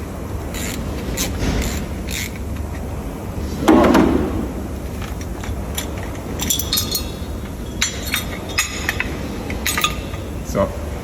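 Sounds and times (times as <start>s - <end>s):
steady low hum: 0.0s - 11.0s
dull metal clunk: 3.6s - 4.7s
ringing metallic clinks: 6.4s - 10.3s.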